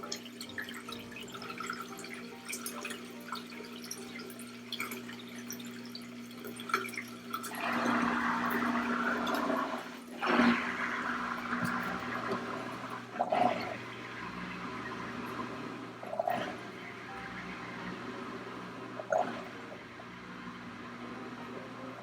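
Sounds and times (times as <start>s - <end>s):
water draining from washing machine: 0.0s - 22.0s
low hum: 12.0s - 22.0s.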